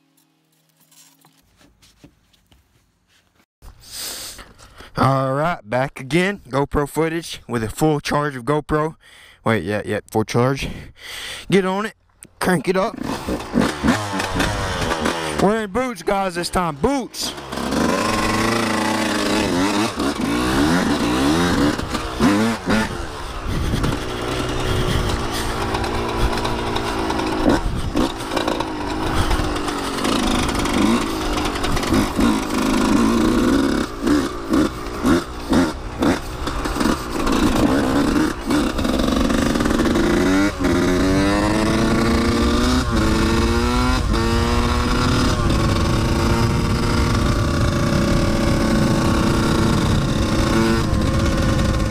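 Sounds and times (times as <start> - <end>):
dirt bike engine revving: 12.4 - 51.9.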